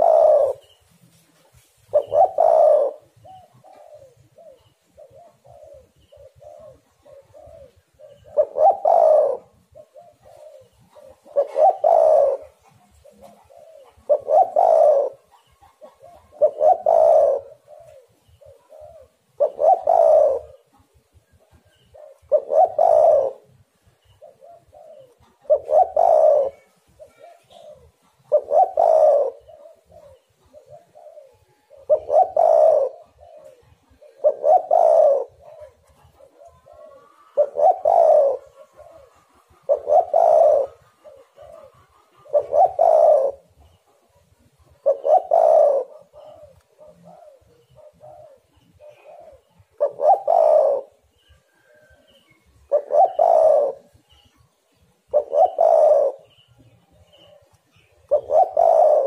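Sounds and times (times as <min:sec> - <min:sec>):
dove cooing: 0:00.0 - 0:59.0.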